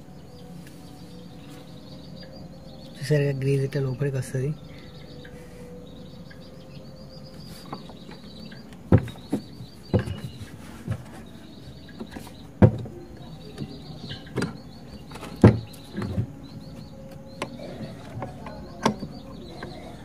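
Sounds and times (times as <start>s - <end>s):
birds or insects chirping: 0.0s - 20.0s
knocks and clicks of pump parts: 14.3s - 16.3s.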